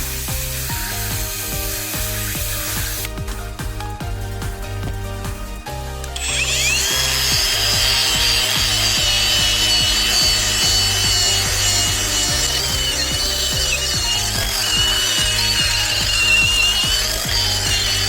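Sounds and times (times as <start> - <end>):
grinder whining: 0.0 - 3.2, 6.0 - 18.0.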